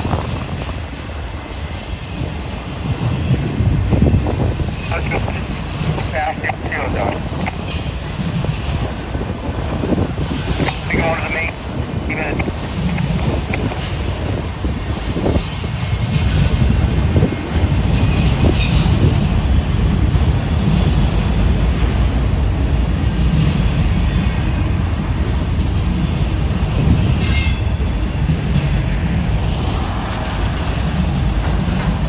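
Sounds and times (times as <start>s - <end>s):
train wheels rumbling on rail: 0.0s - 32.0s
wheel screech on rail: 27.2s - 27.9s.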